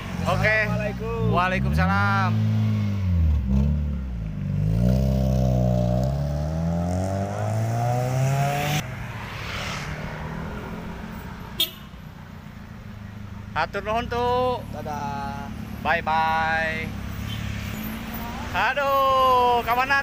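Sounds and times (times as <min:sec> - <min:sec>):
car engine revving: 0:00.0 - 0:11.6
street hum: 0:00.0 - 0:20.0.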